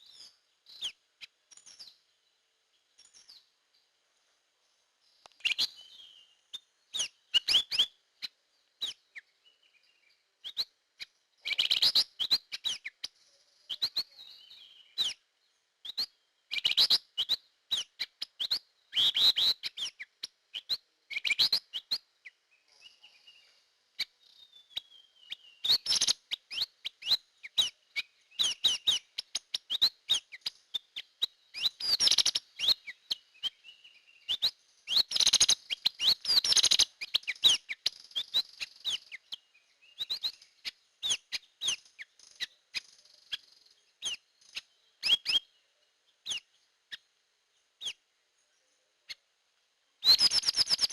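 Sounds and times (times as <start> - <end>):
bird chirping and whistling: 24.8 - 30.8, 31.6 - 33.6, 34.3 - 39.2, 40.0 - 41.8, 45.0 - 45.5, 50.0 - 50.9
falling bird whistles: 50.0 - 50.9.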